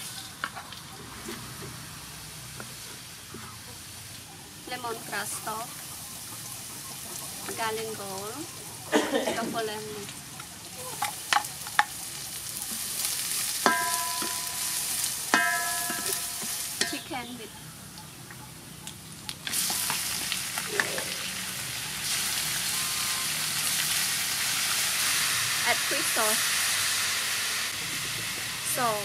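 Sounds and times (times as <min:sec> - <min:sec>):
food sizzling in hot oil: 0:09.6 - 0:17.4, 0:19.4 - 0:29.0
metallic wok ringing: 0:13.5 - 0:17.5.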